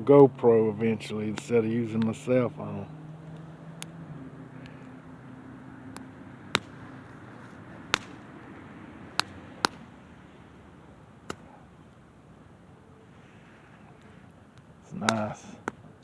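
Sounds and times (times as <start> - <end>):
campfire crackling: 3.2 - 13.3, 13.9 - 16.0
sharp fire pops: 6.0 - 8.5.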